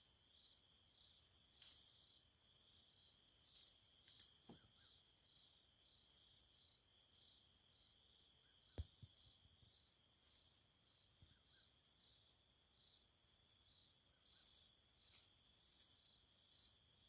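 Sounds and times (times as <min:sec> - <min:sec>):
high insect chirp: 0:00.0 - 0:17.0
insect trill: 0:00.0 - 0:17.0.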